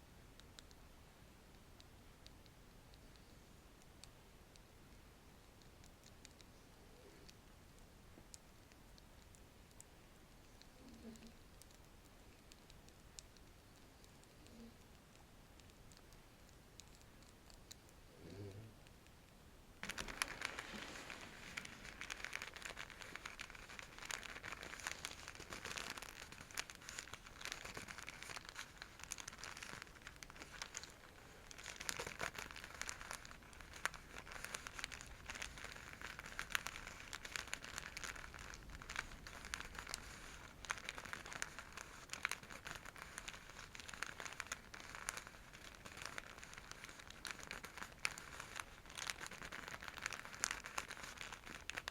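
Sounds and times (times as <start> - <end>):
silk bag crinkling: 19.8 - 51.9.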